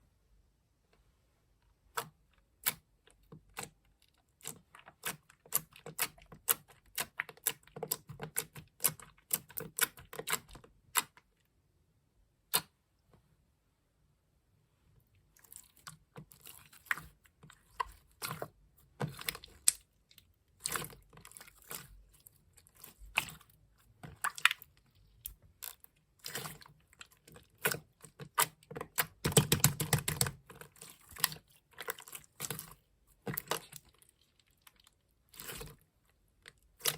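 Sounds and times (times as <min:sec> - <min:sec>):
gel slime clicking and popping: 0:27.2 - 0:32.6.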